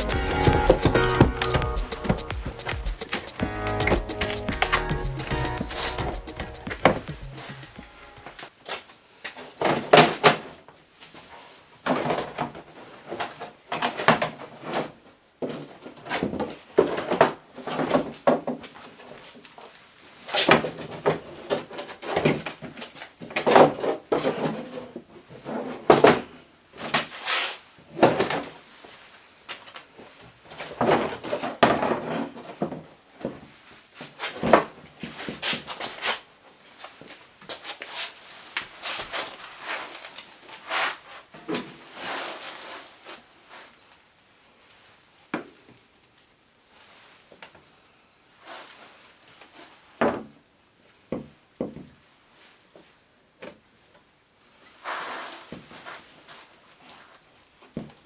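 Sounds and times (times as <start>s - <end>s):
hand tools clunking and scraping: 0.0s - 8.5s.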